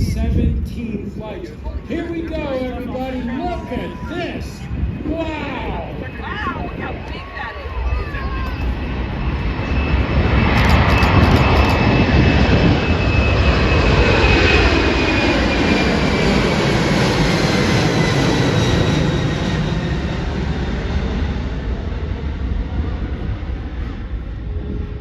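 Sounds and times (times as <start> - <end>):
aircraft engines roaring: 0.0 - 25.0
falling engine whine: 0.0 - 25.0.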